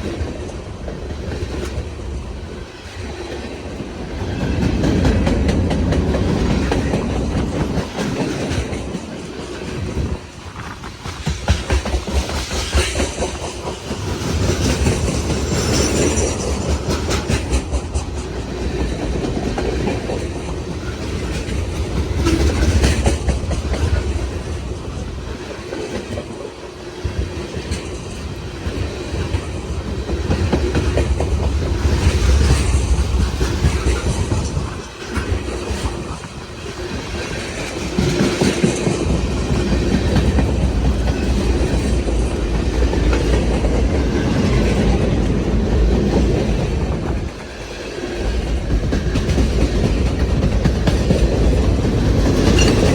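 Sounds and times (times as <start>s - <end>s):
freight train cars rolling: 0.0s - 52.9s.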